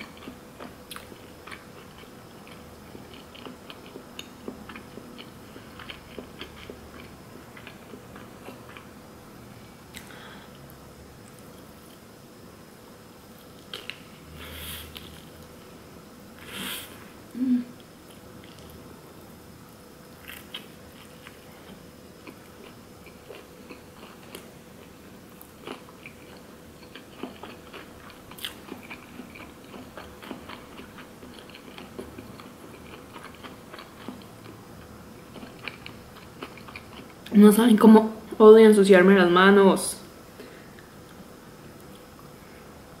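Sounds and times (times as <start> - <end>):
person chewing sushi: 0.0 - 8.9, 17.8 - 18.8, 20.1 - 37.3
faint steady hum: 0.0 - 43.0.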